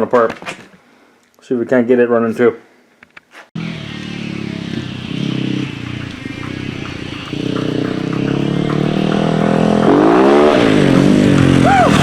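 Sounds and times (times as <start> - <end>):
lawn mower engine running: 3.6 - 11.6.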